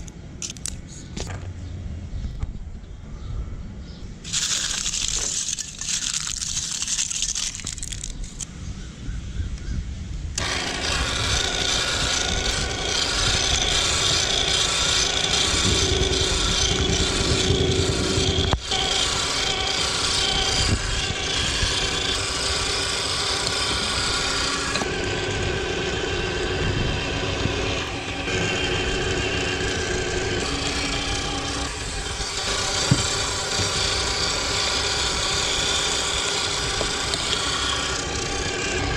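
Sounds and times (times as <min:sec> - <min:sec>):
foil crackling: 0:04.3 - 0:08.4
meat grinder droning: 0:10.4 - 0:38.9.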